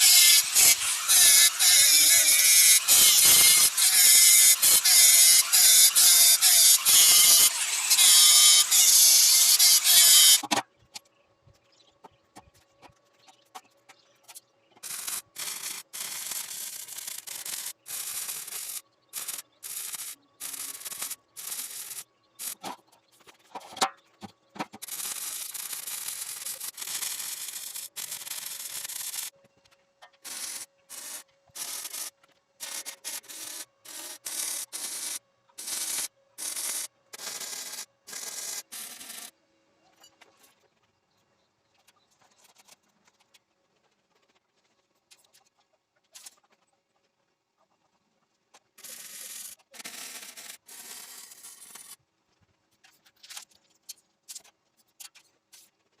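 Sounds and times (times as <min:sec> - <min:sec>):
loud abrasive grinding on steel: 0:00.0 - 0:10.4
short bursts of grinding: 0:00.0 - 0:10.5, 0:14.8 - 0:22.6, 0:24.8 - 0:29.3, 0:30.2 - 0:39.3.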